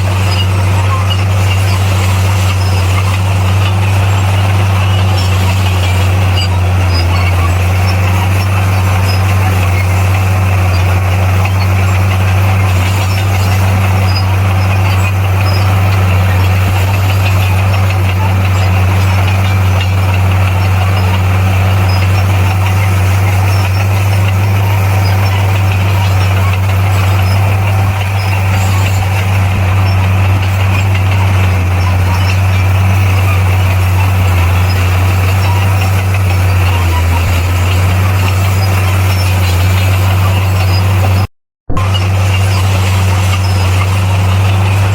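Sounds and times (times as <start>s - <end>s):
bulldozer diesel engine droning: 0.0s - 44.9s.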